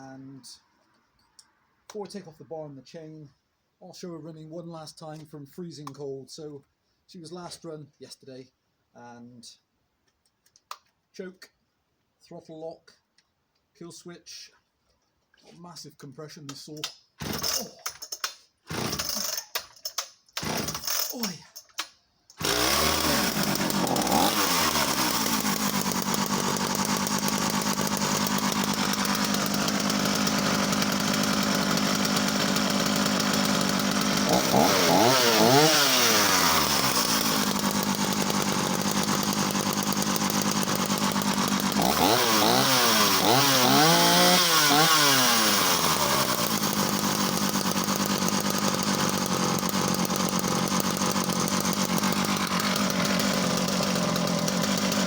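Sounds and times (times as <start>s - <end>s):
chainsaw idling and revving: 17.2s - 55.0s.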